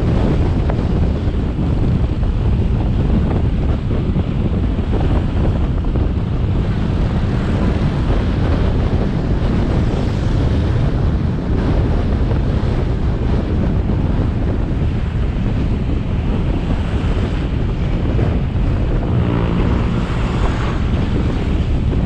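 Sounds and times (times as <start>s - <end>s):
road noise: 0.0s - 22.0s
wind buffeting microphone: 0.0s - 22.0s
motorbike engine: 16.8s - 22.0s.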